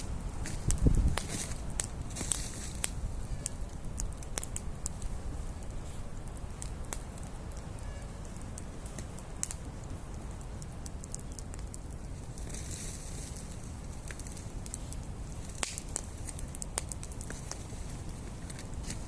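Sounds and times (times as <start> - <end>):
steady low rumble: 0.0 - 11.0
campfire crackling: 0.0 - 19.0
sharp pops of burning wood: 0.0 - 19.0.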